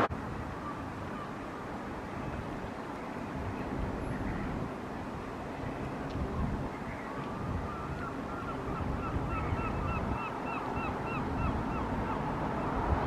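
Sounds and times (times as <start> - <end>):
wind rumble on microphone: 0.0 - 13.0
bird honking calls: 6.8 - 12.2.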